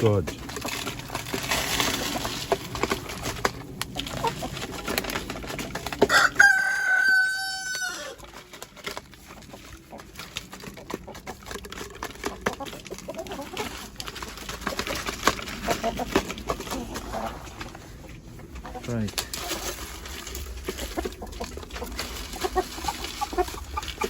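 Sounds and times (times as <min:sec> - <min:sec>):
chickens clucking: 0:00.0 - 0:24.0
rooster crowing: 0:06.1 - 0:08.2.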